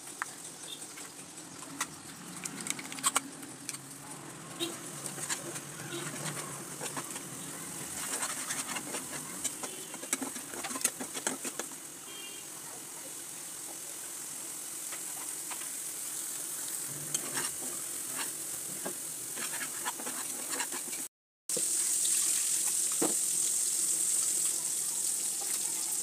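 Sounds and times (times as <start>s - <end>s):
spices sizzling in a wok: 3.8s - 26.0s
spatula scraping and knocking pan: 4.6s - 11.8s, 17.1s - 21.1s.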